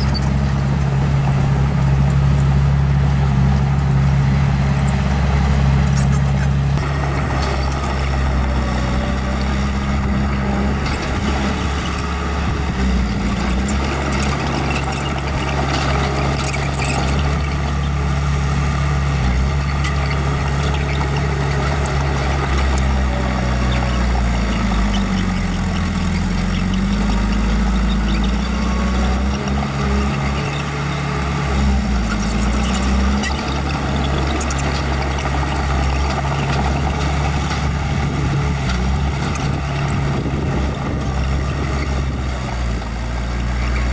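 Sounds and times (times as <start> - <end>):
bulldozer diesel engine working: 0.0 - 43.9.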